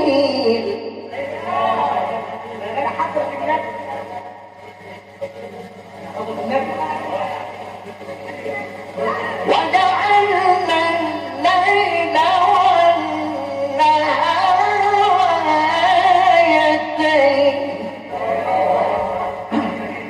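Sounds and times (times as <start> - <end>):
steady low hum: 0.0 - 20.0
man reciting in melismatic chant: 9.4 - 20.0.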